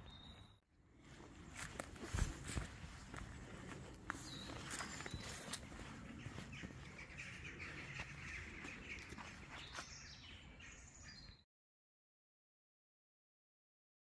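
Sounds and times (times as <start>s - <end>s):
bird chirping: 0.0s - 0.6s, 3.5s - 11.4s
footsteps on leaf litter: 1.0s - 10.0s.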